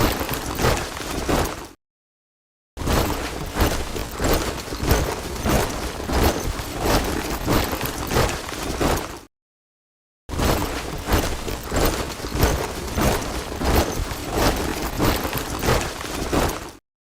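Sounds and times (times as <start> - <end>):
boots marching in step: 0.0 - 1.8, 2.8 - 9.3, 10.4 - 16.8.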